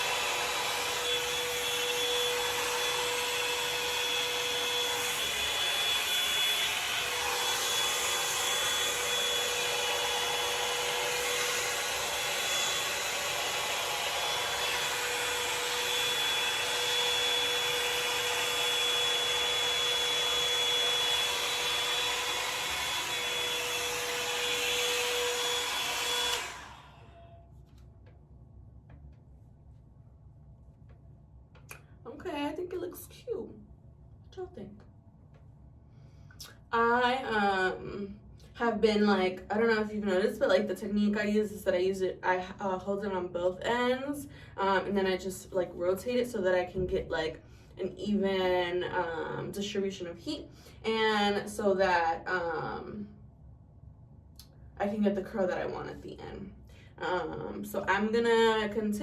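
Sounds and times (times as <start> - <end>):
hot-air brush blowing: 0.0 - 27.4.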